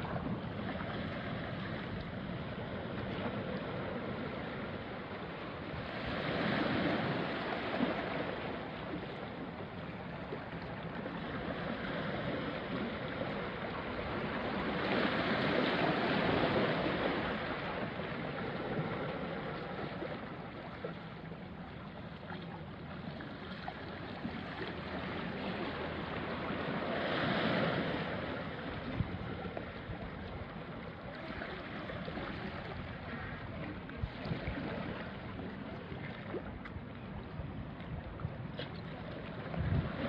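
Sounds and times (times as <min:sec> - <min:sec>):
wind on microphone: 0:00.0 - 0:20.5, 0:24.1 - 0:40.0
waves washing onto rocky shore: 0:11.0 - 0:20.2.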